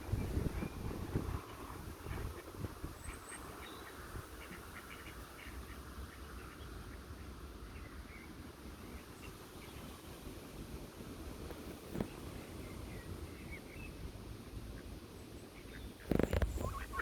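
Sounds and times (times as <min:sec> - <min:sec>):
wind rumbling on microphone: 0:00.0 - 0:04.4, 0:16.0 - 0:17.0
ducks quacking: 0:16.1 - 0:17.0.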